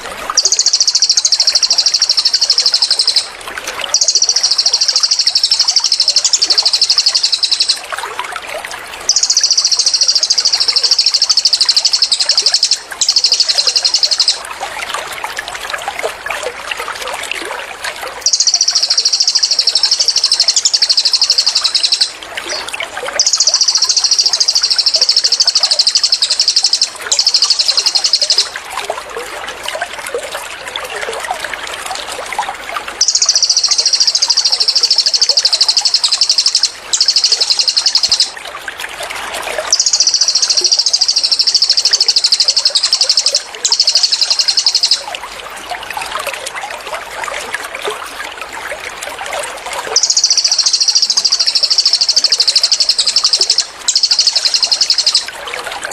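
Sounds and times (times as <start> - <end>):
songbird singing rapid trills: 0.0 - 7.9, 9.0 - 14.5, 18.2 - 28.6, 33.0 - 38.4, 39.7 - 45.1, 50.0 - 55.4
trickle of running water: 0.0 - 55.9.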